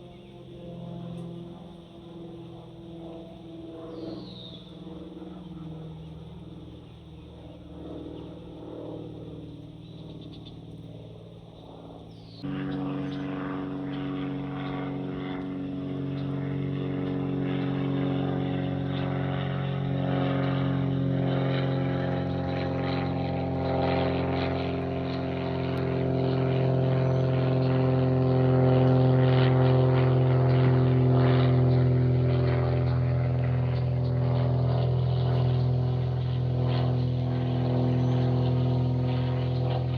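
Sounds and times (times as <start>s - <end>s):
aircraft engine drone: 0.0s - 39.9s.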